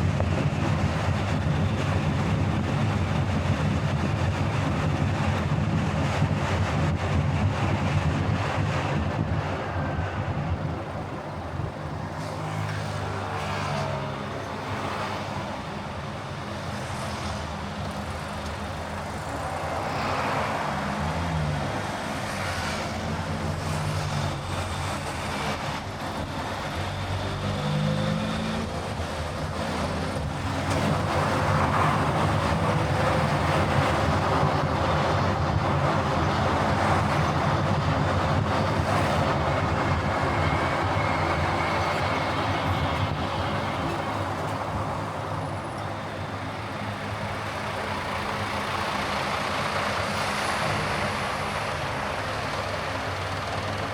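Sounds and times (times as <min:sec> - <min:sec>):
tyre and road noise: 0:00.0 - 0:53.9
car engine hum: 0:23.2 - 0:53.9.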